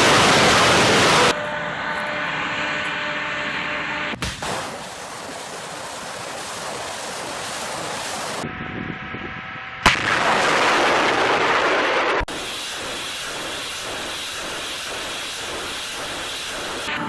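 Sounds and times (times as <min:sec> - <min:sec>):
rockets launching roar: 0:00.0 - 0:01.4, 0:04.1 - 0:08.5, 0:09.8 - 0:17.0
sharp blast: 0:09.8 - 0:16.9.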